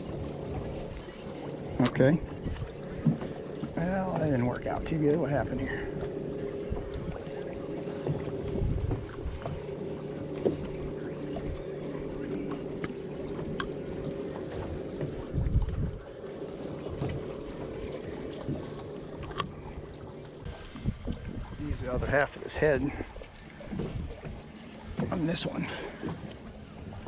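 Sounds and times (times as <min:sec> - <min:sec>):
boat steady low hum: 0:00.0 - 0:27.0
wind gusting on microphone: 0:15.1 - 0:16.1, 0:20.4 - 0:22.2.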